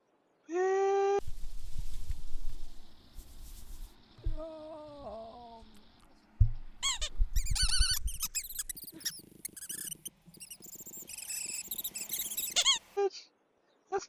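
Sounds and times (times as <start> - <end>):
small birds chirping: 2.5 - 13.0.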